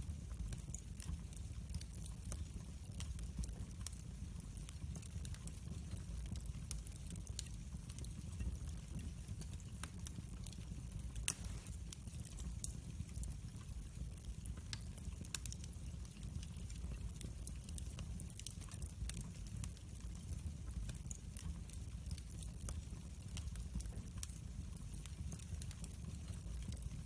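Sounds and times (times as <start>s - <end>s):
wood fire crackling: 0.0s - 27.0s
fire pop: 11.2s - 12.0s.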